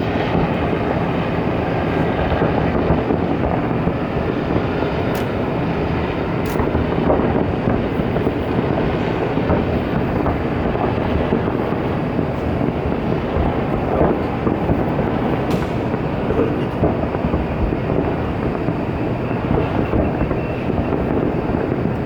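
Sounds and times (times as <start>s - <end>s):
rumble of distant firework bursts: 0.0s - 22.0s
sharp firework cracks: 1.9s - 22.0s.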